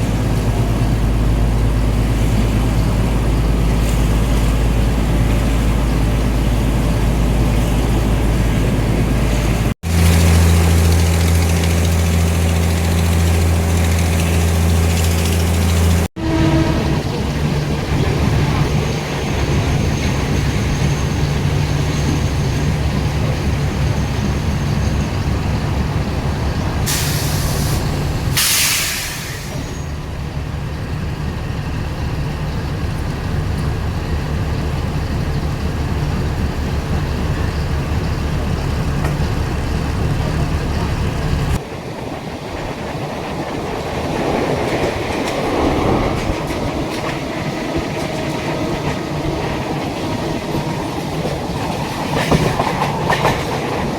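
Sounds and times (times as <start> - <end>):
train rumbling with rattling: 0.0 - 53.9
short bursts of hiss: 26.9 - 29.6.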